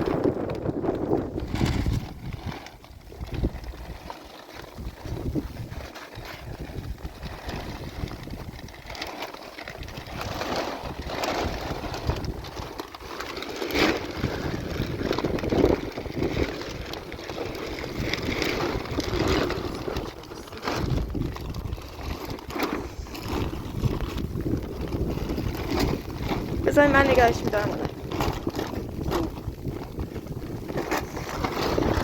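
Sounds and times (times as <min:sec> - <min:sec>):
wind buffeting microphone: 0:00.0 - 0:04.1, 0:04.8 - 0:32.0.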